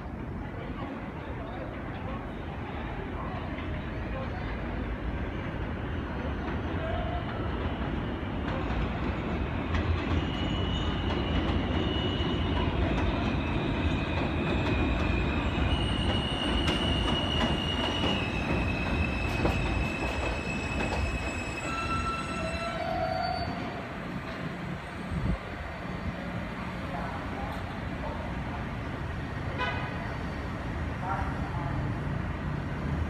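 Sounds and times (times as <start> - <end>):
steel wheels rumbling on rail: 3.5 - 33.0
high-pitched wheel squeal: 15.1 - 23.8.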